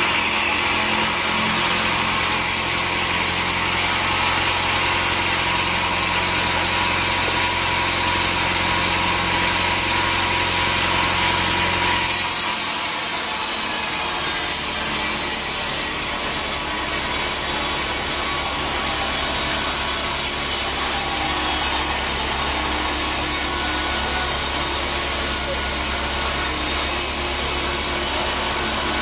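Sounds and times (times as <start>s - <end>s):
saw blade rasping through wood: 0.0s - 29.0s.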